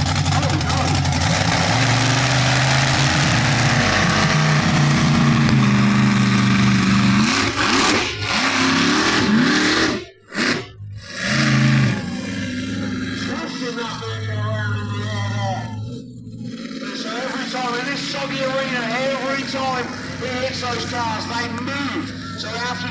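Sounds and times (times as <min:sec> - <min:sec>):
monster truck engine revving: 0:00.0 - 0:22.9.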